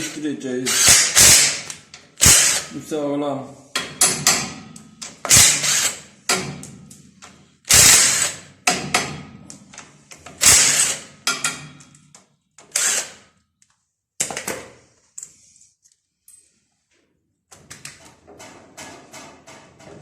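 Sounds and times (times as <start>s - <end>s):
metal tool striking stud nuts: 3.8s - 6.8s, 8.6s - 9.4s, 10.4s - 12.0s.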